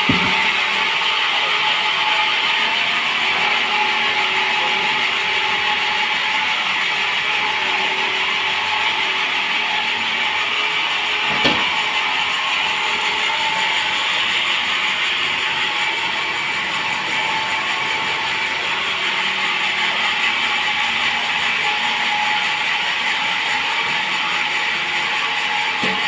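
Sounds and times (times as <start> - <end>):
knock: 0.0 - 0.6, 11.3 - 11.8
sawmill saw cutting log: 0.0 - 26.0.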